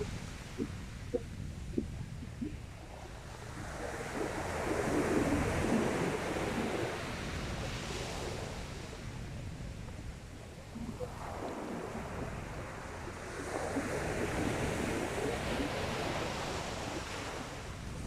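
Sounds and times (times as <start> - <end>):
sea waves washing in: 0.0 - 9.2
wind rumble on microphone: 0.0 - 18.0.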